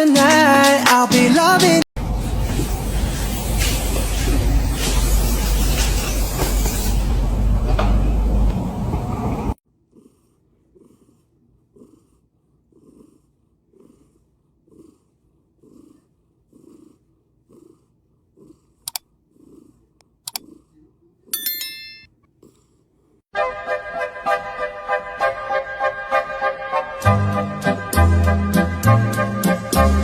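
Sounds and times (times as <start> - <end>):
cat purring: 9.5 - 21.3
sharp clicks: 20.3 - 20.5
high ringing sound: 21.4 - 22.1.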